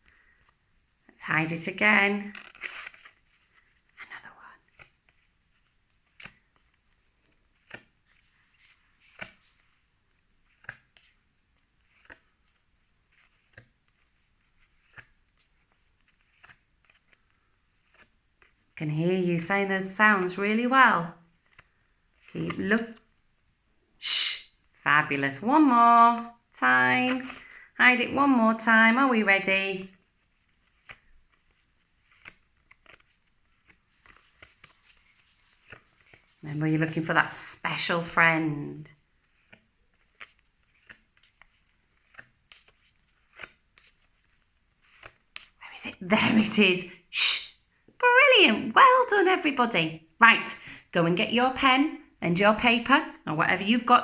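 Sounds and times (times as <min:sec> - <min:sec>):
paper cards rustling and clicking: 0:00.0 - 0:20.7, 0:21.3 - 0:23.4, 0:27.0 - 0:27.6, 0:29.3 - 0:38.3, 0:38.9 - 0:46.6
flashcards flicking: 0:02.2 - 0:04.0, 0:04.6 - 0:18.8, 0:21.4 - 0:23.2, 0:27.0 - 0:27.7, 0:29.9 - 0:37.1, 0:39.0 - 0:46.5.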